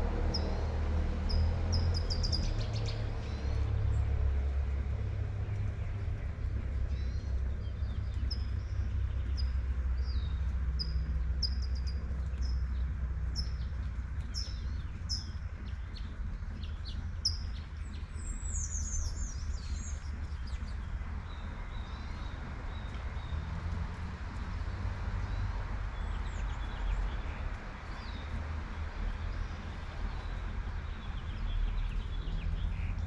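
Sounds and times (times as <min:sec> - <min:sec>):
low traffic rumble: 0:00.0 - 0:33.0
bird chirping: 0:01.3 - 0:03.6, 0:06.9 - 0:23.4.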